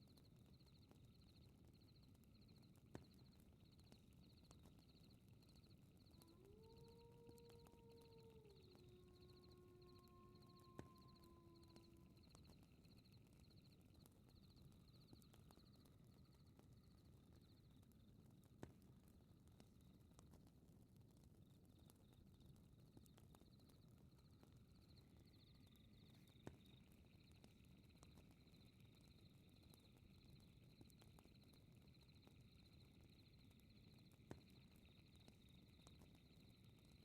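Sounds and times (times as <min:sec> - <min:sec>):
fire crackling and popping: 0:00.0 - 0:37.0
night insects chirping: 0:03.2 - 0:13.7.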